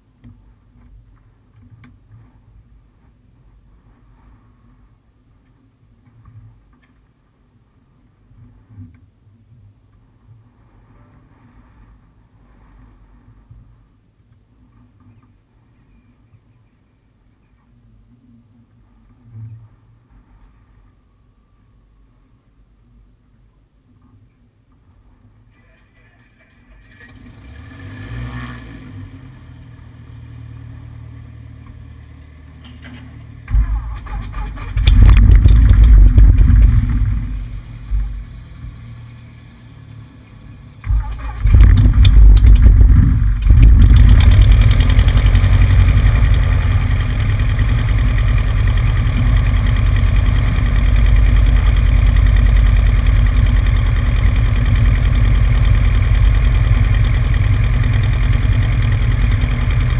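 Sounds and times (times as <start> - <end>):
piston aircraft engine starting: 32.6 - 59.9.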